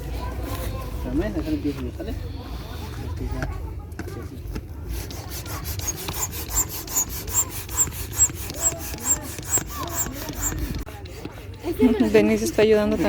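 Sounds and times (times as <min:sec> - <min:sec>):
hand pump strokes hissing: 0:04.8 - 0:13.0.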